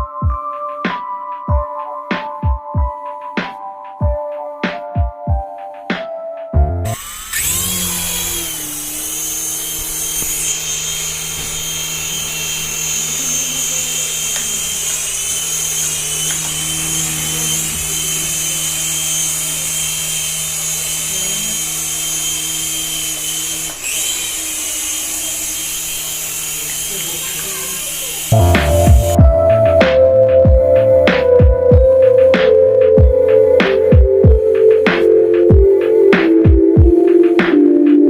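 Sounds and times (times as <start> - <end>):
small electric motor running: 6.9 - 29.1.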